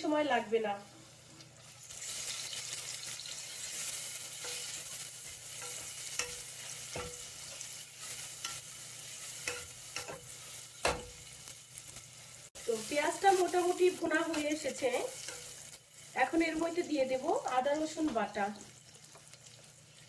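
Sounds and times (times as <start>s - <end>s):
onions sizzling in oil: 0.0s - 20.0s
utensil scraping a pan: 3.7s - 11.2s.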